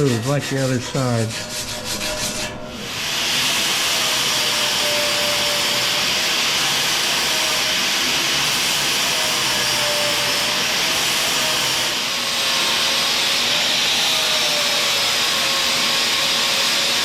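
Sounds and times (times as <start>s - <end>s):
angle grinder grinding steel: 0.0s - 17.0s.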